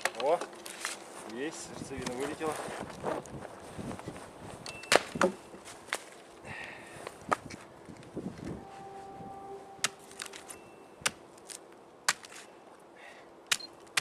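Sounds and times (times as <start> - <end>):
axe chopping dry wood: 12.1 - 12.4, 13.5 - 14.0.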